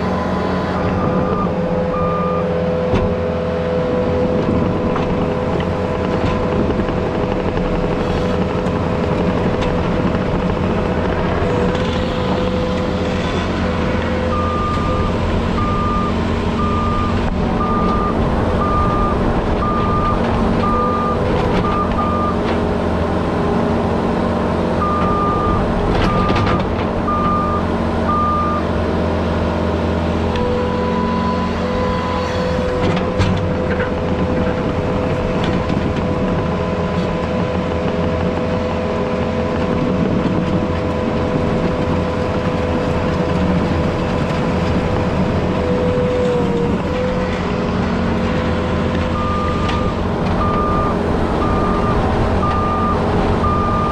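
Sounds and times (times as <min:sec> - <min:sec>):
diesel engine running: 0:00.0 - 0:53.9
backup alarm beeping: 0:14.3 - 0:22.4, 0:24.8 - 0:26.5, 0:49.1 - 0:53.9.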